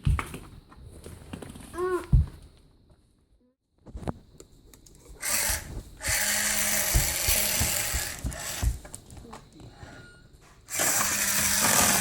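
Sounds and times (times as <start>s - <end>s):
toy electric motor whirring: 5.2s - 8.9s, 10.7s - 12.0s.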